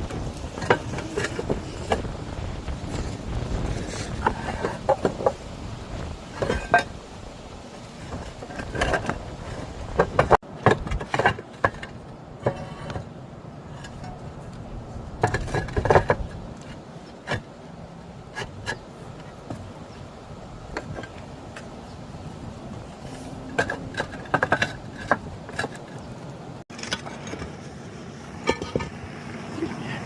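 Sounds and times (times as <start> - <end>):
tiles scraping: 0.0 - 5.4, 6.0 - 7.0, 7.8 - 17.6, 22.6 - 27.8
tiles clinking and knocking: 23.5 - 27.6.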